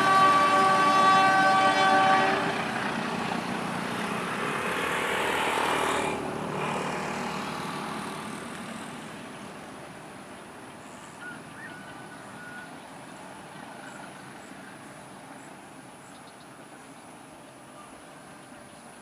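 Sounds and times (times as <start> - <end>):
train rumble: 0.0 - 17.4
bird calling: 10.8 - 17.0.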